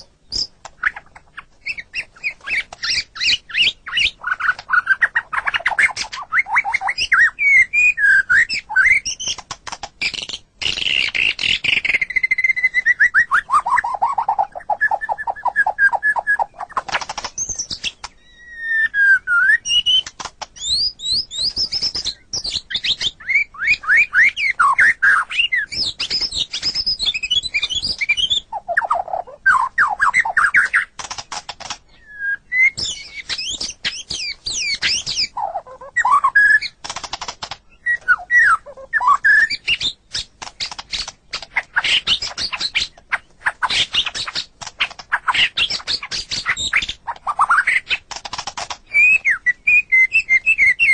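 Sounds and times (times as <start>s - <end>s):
bird singing whistled song: 0.0s - 9.4s, 10.0s - 30.9s, 31.9s - 36.8s, 37.7s - 44.5s, 45.1s - 48.0s, 48.8s - 50.9s
bird clicking chatter: 8.4s - 12.2s, 13.7s - 18.2s, 19.7s - 23.2s, 29.8s - 31.9s, 32.7s - 50.8s.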